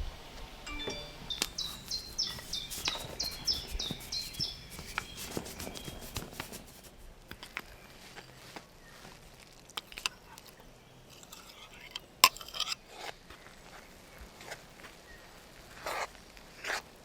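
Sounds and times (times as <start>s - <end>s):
songbird singing high notes: 0.7s - 5.2s.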